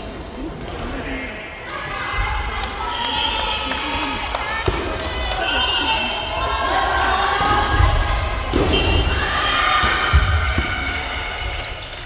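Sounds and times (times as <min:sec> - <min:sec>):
players shouting: 0:01.6 - 0:12.0
sharp volleyball hit: 0:08.5 - 0:11.0.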